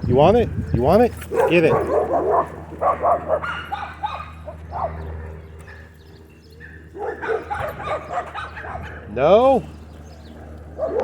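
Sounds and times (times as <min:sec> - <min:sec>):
low wind rumble: 0:00.0 - 0:11.0
dog barking and yipping: 0:01.2 - 0:06.0, 0:06.6 - 0:09.1, 0:10.7 - 0:11.0.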